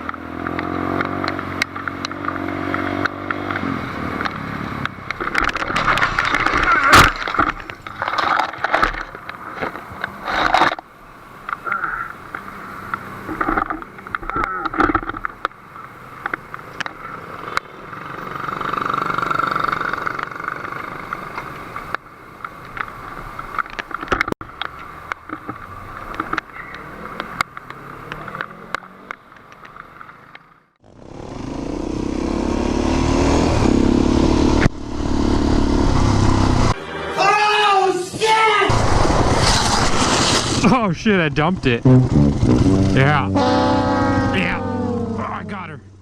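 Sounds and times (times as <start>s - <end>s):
loud motorcycle engine: 0.0s - 6.9s, 17.1s - 21.0s, 30.8s - 37.6s, 41.6s - 46.0s
motorcycle road and engine noise: 0.0s - 46.0s.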